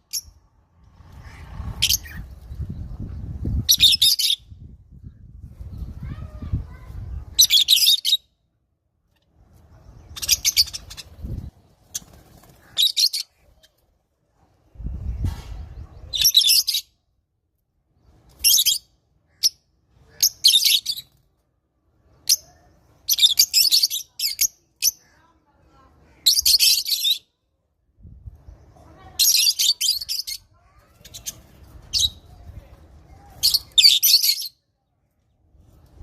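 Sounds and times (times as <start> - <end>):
lovebirds chirping shrilly: 0.0 - 8.3, 9.6 - 13.7, 22.2 - 25.1, 33.4 - 34.6.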